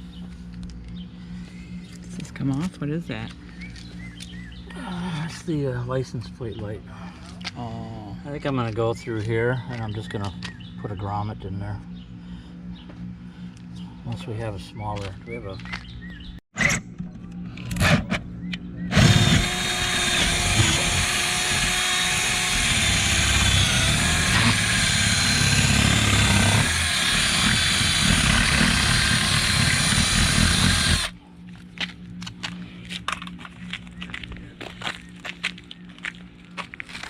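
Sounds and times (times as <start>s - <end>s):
power drill running: 18.9s - 31.2s.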